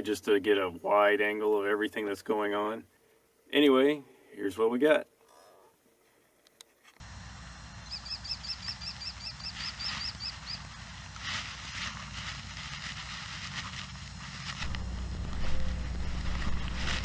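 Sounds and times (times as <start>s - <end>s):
bird chirping rapidly: 7.8s - 10.6s
low rumble of camera movement: 8.6s - 17.0s.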